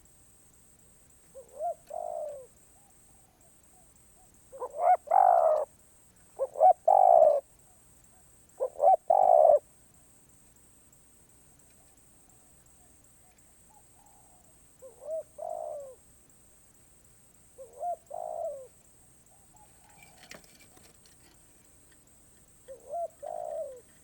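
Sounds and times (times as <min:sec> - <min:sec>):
dove cooing: 0:01.3 - 0:05.7, 0:06.3 - 0:07.5, 0:08.5 - 0:09.6, 0:13.7 - 0:16.0, 0:17.6 - 0:21.4, 0:22.6 - 0:24.0.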